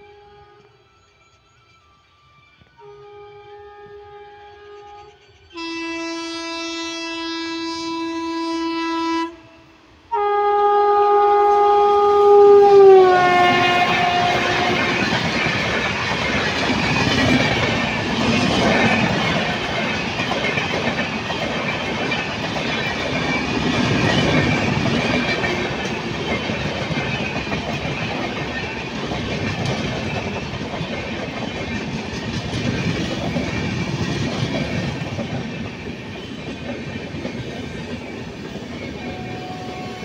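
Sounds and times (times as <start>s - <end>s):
passenger train passing: 0.0s - 40.0s
wheels clacking over rails: 14.0s - 39.2s.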